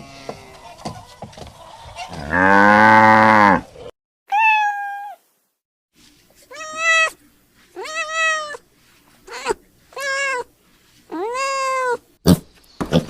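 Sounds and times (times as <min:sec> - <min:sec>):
cow mooing: 0:02.2 - 0:03.6
cat meowing: 0:04.3 - 0:05.2, 0:06.5 - 0:07.2, 0:07.8 - 0:08.6, 0:09.3 - 0:10.5, 0:11.1 - 0:12.0.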